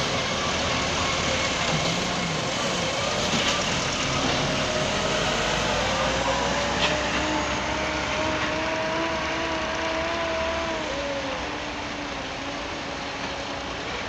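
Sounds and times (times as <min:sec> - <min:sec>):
heavy machinery engine running: 0:00.0 - 0:14.0
wavering whine: 0:04.1 - 0:14.0.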